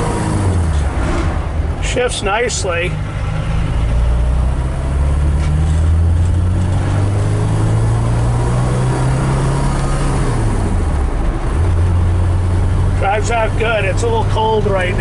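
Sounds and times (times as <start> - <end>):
car engine accelerating: 0.0 - 2.0, 2.9 - 15.0.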